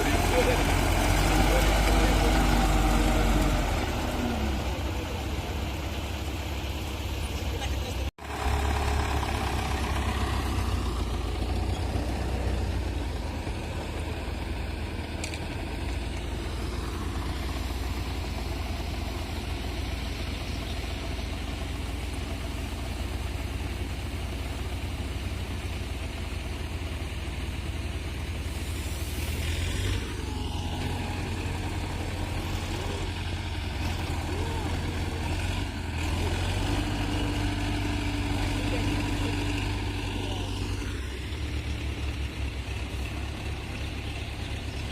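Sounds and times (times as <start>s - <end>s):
tractor engine rumbling: 0.0s - 44.9s.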